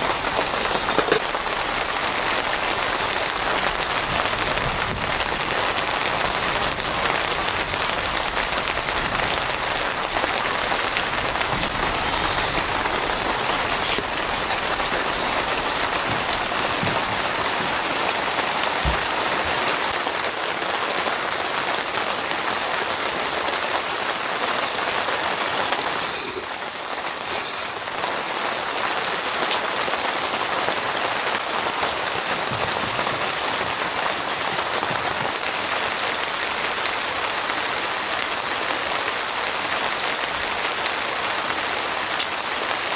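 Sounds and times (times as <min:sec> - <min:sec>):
steady rain falling: 0:00.0 - 0:42.9
sharp high hiss: 0:26.0 - 0:26.5, 0:27.2 - 0:27.8.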